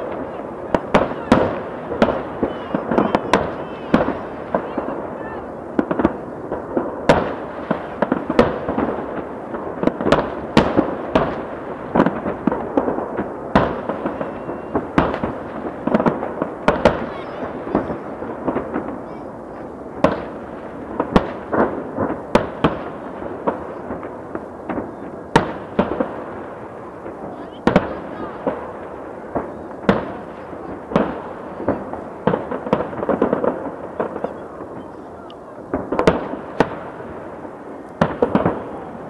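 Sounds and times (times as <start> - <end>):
continuous background noise: 0.0 - 39.0
fireworks bangs: 0.0 - 39.0.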